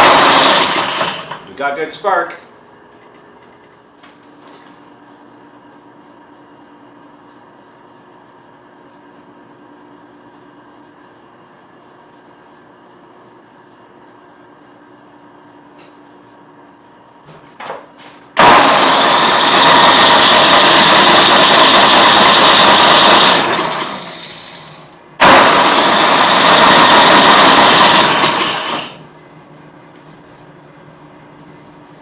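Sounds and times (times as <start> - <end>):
electric starter cranking engine: 0.0 - 1.4, 18.4 - 29.0.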